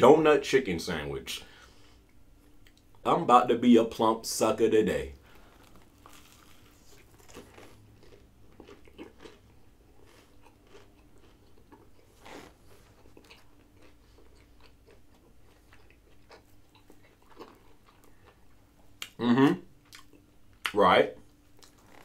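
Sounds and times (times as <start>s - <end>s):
person chewing crunchy food: 5.3s - 20.3s, 21.5s - 22.0s.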